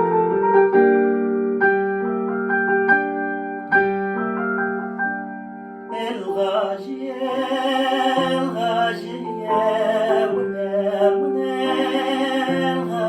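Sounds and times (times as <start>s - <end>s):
electric piano playing chords: 0.0s - 13.0s.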